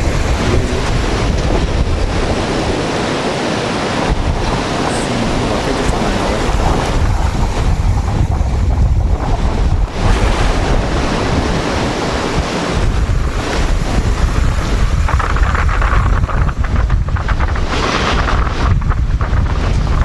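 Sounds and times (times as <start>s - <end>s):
surf breaking on beach: 0.0s - 20.0s
wind buffeting microphone: 0.0s - 20.0s.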